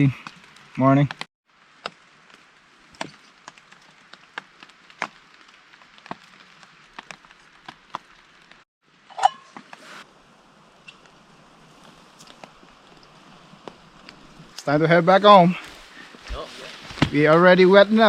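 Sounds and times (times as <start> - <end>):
rain hissing: 0.0 - 18.0
raindrops tapping on a surface: 1.0 - 8.6.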